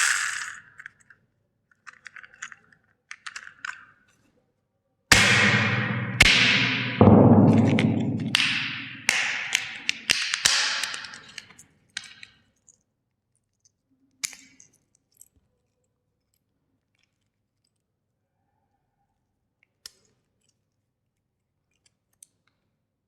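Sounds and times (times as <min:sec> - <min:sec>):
plastic toys cracking: 0:00.0 - 0:04.0.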